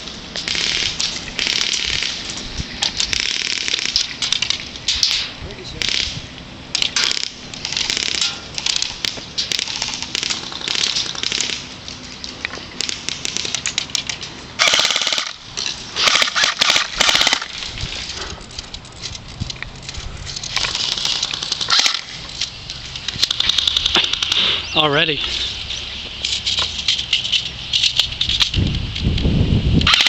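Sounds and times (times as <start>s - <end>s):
crunching and rustling: 0.0s - 29.2s
airsoft guns firing bursts: 0.5s - 2.2s, 3.1s - 4.0s, 14.6s - 15.4s, 16.0s - 17.6s.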